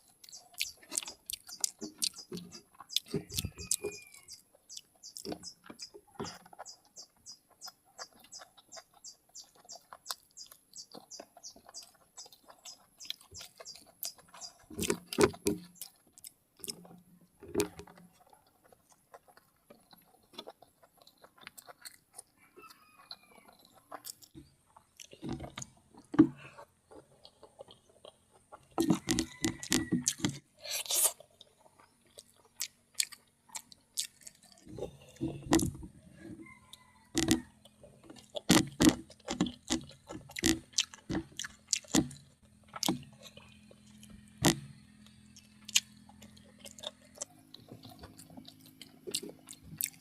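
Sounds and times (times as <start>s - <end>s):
person chewing and crunching food: 0.0s - 50.0s
rapid high chirping: 0.2s - 14.8s.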